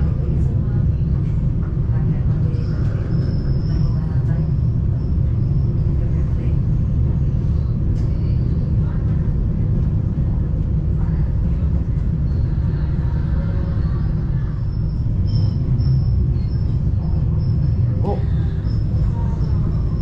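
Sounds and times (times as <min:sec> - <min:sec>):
vehicle rumble: 0:00.0 - 0:20.0.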